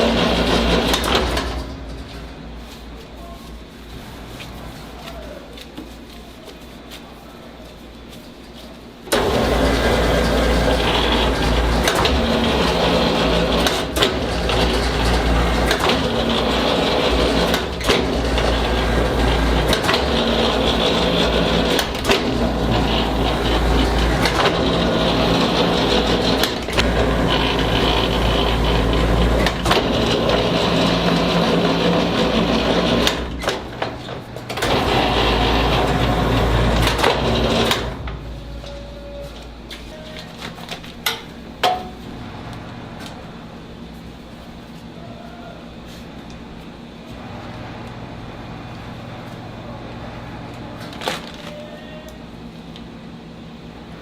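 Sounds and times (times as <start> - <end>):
dough sheeter motor running: 0.0 - 5.9, 8.6 - 54.0
rollers knocking: 9.1 - 42.1.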